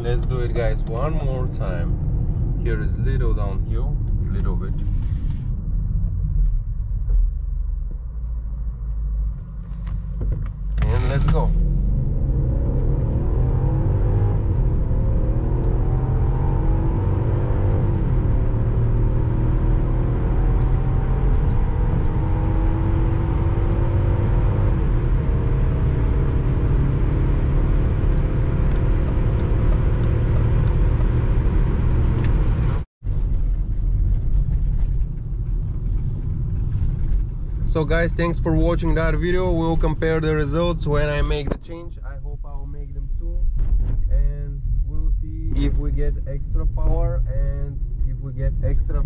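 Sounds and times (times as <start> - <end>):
car engine accelerating hard: 10.8 - 32.8.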